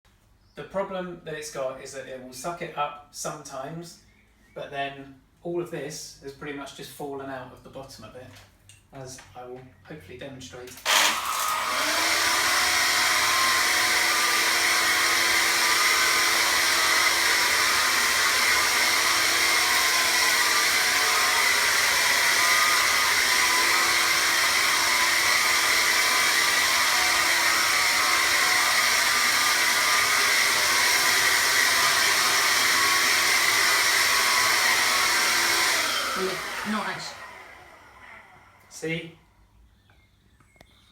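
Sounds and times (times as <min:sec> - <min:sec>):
vacuum cleaner running: 0:10.8 - 0:38.8.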